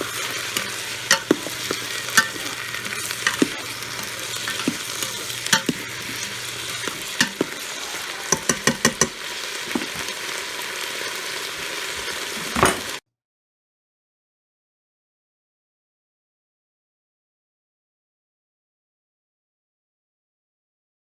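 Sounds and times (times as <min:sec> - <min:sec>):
utensil clicking against pot: 0:00.0 - 0:10.2
food sizzling in a pot: 0:00.0 - 0:13.0.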